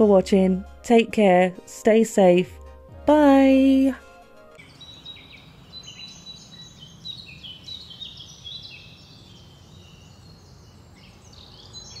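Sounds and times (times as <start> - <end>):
birds chirping and singing: 4.6 - 12.0.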